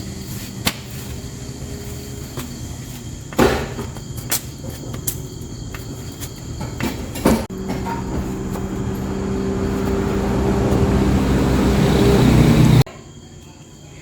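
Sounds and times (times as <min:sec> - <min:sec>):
vehicle engine running: 0:07.4 - 0:12.9.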